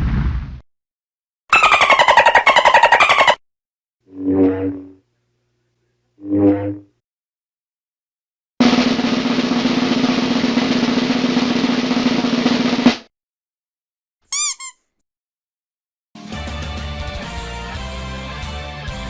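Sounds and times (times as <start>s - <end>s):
snare drum roll: 8.6s - 13.1s.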